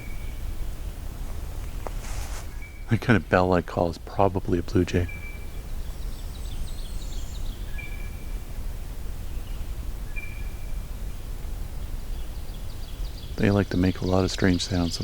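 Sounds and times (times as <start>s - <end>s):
low background rumble: 0.0s - 15.0s
small songbirds high notes: 9.2s - 15.0s.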